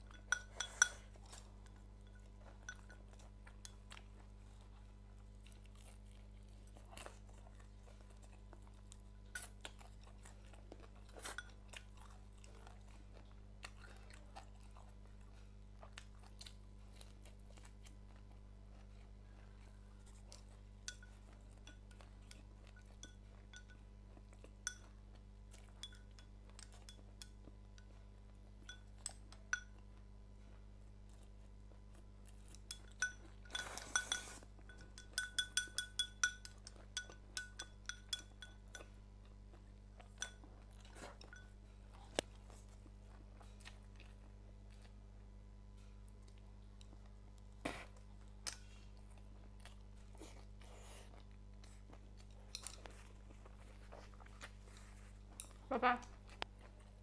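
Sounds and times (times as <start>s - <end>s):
person chewing: 0.0s - 57.0s
chopsticks clicking against a bowl: 32.6s - 38.9s.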